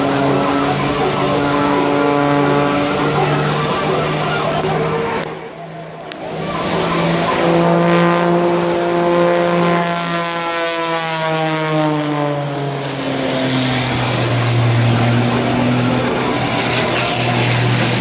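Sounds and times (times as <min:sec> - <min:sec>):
propeller airplane droning past: 0:00.0 - 0:18.0.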